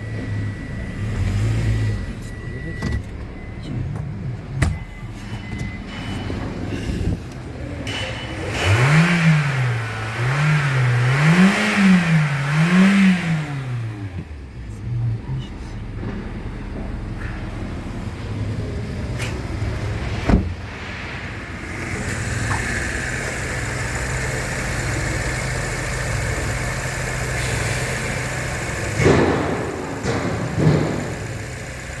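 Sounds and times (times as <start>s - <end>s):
car engine running steadily: 0.0s - 32.0s
thumps: 20.1s - 21.5s.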